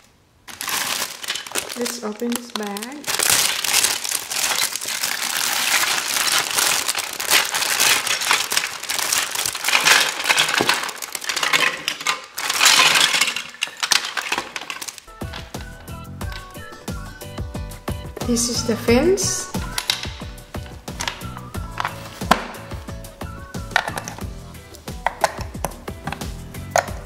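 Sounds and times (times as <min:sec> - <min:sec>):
plastic bag crinkling: 0:00.0 - 0:16.8, 0:18.1 - 0:24.2
background music: 0:15.1 - 0:27.0.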